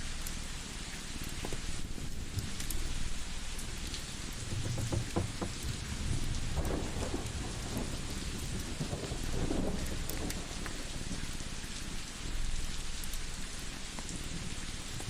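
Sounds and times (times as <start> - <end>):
rain-like hiss: 0.0 - 15.0
wood fire crackling: 0.1 - 15.0.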